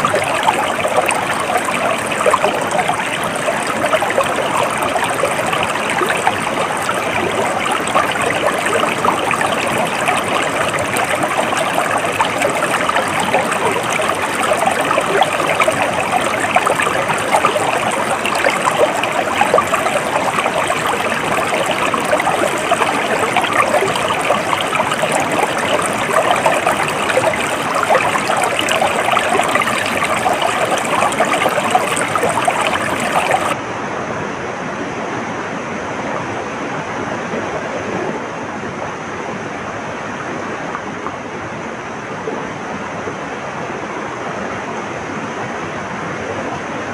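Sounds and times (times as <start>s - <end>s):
water flowing over stones: 0.0s - 33.6s.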